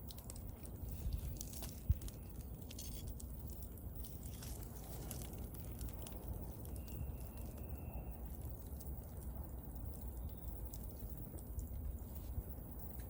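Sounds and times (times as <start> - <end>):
bonfire rumbling: 0.0 - 13.0
fire crackling and popping: 0.0 - 13.0
faint thin whistle: 6.7 - 8.3.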